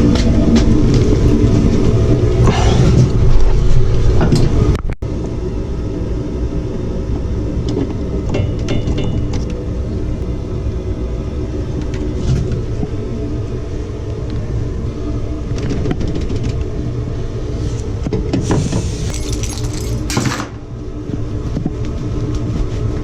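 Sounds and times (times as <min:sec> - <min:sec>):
low rumble: 0:00.0 - 0:18.1.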